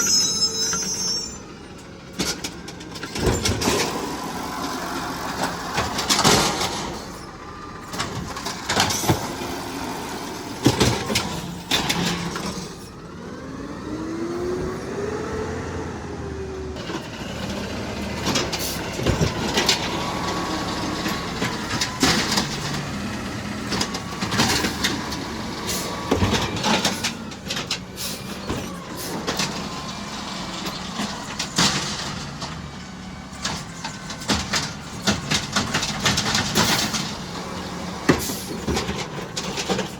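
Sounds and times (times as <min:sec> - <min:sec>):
garbage truck engine running: 0:00.0 - 0:39.9.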